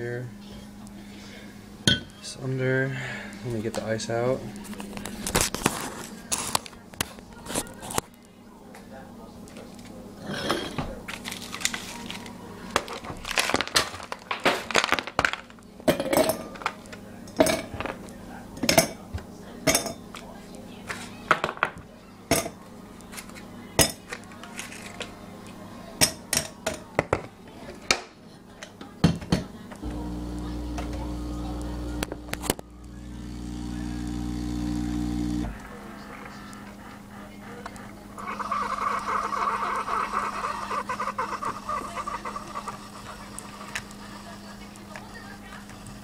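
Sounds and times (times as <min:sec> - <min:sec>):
kitchen items clinking: 0:10.2 - 0:19.0
coffee maker gurgling and sputtering: 0:29.8 - 0:46.0
low machine hum: 0:29.8 - 0:46.0.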